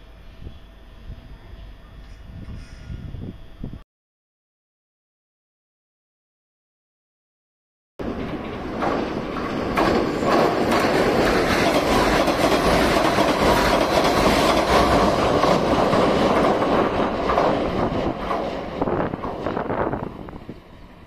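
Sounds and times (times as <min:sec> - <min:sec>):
train rumbling over steel bridge: 0:00.0 - 0:03.8, 0:08.0 - 0:21.0
wheels clicking over rail joints: 0:08.0 - 0:20.7.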